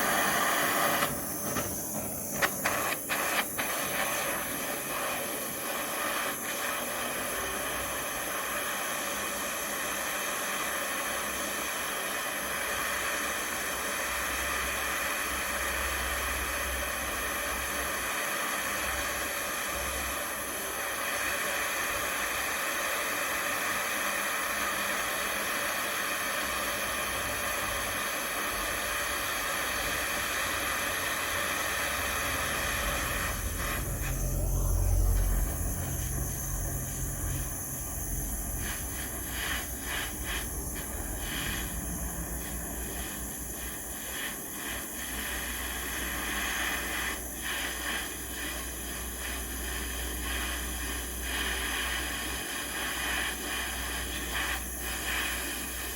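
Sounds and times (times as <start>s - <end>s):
gas flame hissing: 0.0s - 55.9s.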